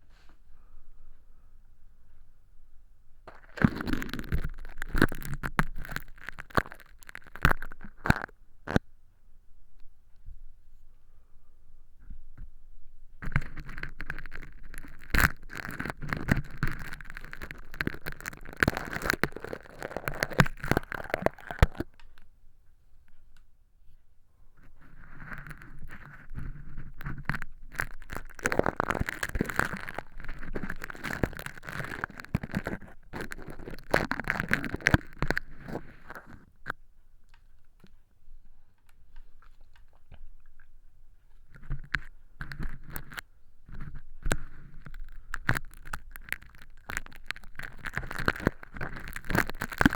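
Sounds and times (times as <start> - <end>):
crinkly crackling of plastic film: 3.3 - 8.8, 13.2 - 22.0, 24.8 - 36.8, 41.4 - 49.9.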